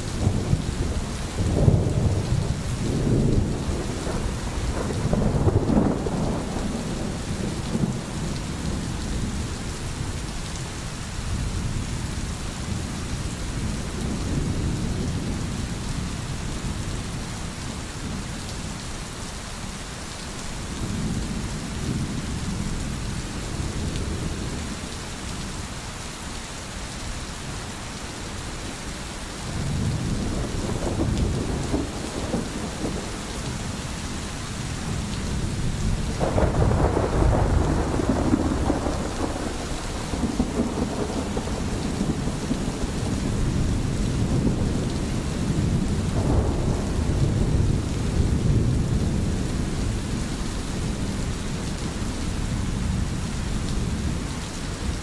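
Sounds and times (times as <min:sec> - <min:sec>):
rolling thunder: 0:00.0 - 0:09.4, 0:29.5 - 0:34.0, 0:34.7 - 0:51.7
heavy rain: 0:00.0 - 0:55.0.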